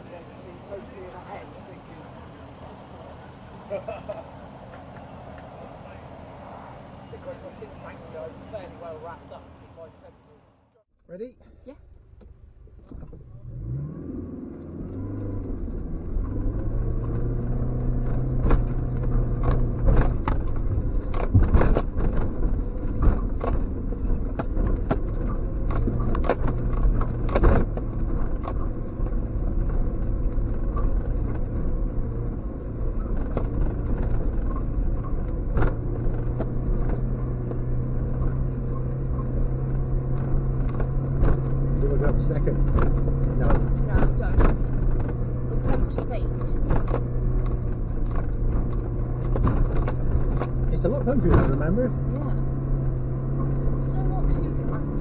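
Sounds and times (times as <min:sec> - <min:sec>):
car engine under load: 0:00.0 - 0:55.0
car knocking and clattering: 0:12.1 - 0:13.3, 0:14.9 - 0:55.0.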